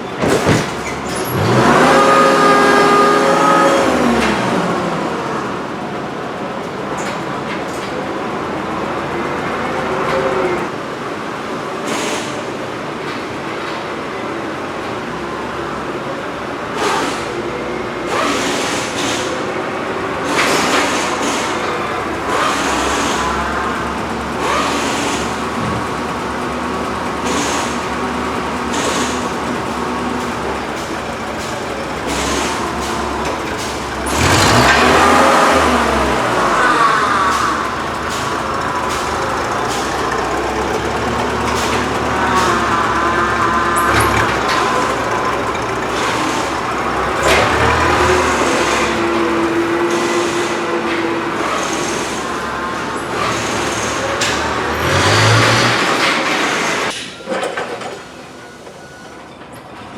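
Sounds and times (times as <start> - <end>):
vehicle engine running: 20.9 - 56.9.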